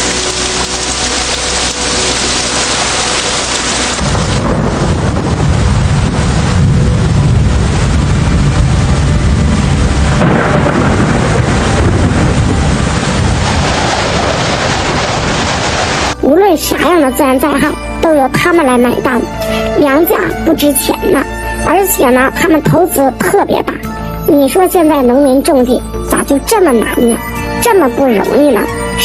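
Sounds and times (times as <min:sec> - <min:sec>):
heavy rain downpour: 0:00.0 - 0:23.5
deep thunder rumble: 0:02.1 - 0:16.9.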